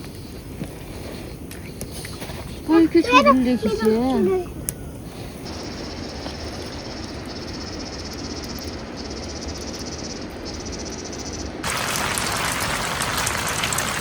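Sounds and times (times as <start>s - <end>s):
steady rain: 0.0s - 10.5s, 11.6s - 14.0s
harsh rush of falling water: 11.6s - 14.0s.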